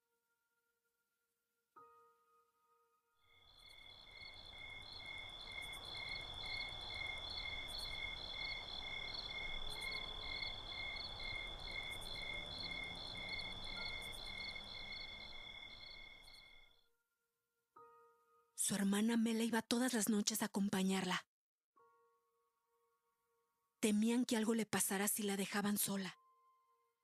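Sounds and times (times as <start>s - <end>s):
crickets chirping: 3.3s - 16.8s.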